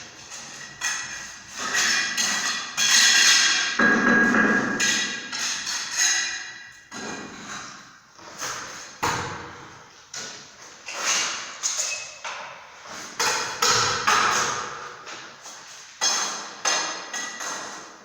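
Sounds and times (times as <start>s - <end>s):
hand tool knocking on masonry: 3.8s - 5.2s.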